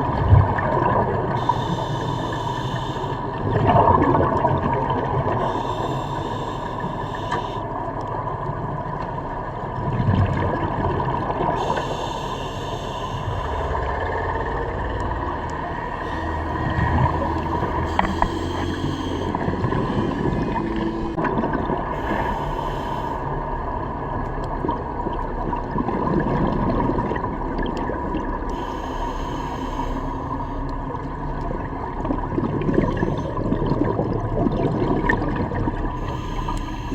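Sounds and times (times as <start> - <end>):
low drone with tones: 0.0 - 9.7, 11.5 - 25.8, 26.5 - 36.9
faint steady hum: 0.0 - 36.9
underwater water rushing: 0.0 - 36.9
hiss: 1.4 - 3.2, 5.4 - 7.6, 11.6 - 13.7.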